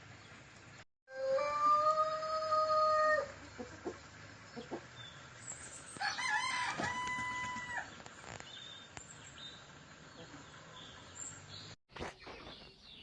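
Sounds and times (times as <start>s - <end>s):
rooster crowing: 1.1s - 3.4s, 6.0s - 7.9s.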